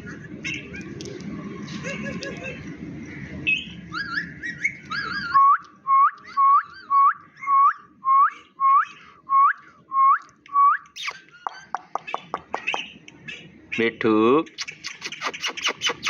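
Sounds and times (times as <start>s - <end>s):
parakeet warbling whistles: 11.0s - 11.7s, 14.6s - 16.0s
parakeet short upward whistles: 14.6s - 16.0s.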